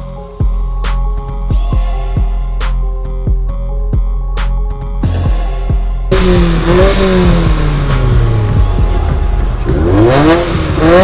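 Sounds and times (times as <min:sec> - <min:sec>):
car engine revving: 0:06.1 - 0:11.0.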